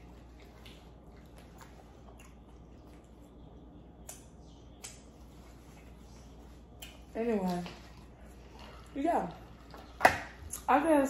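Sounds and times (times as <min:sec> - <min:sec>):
person chewing: 0:00.0 - 0:07.1.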